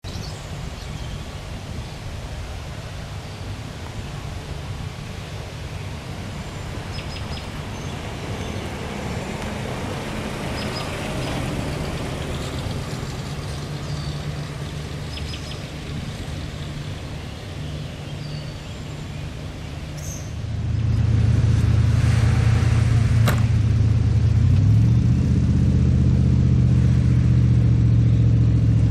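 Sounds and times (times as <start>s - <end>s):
car engine idling: 20.4s - 28.9s.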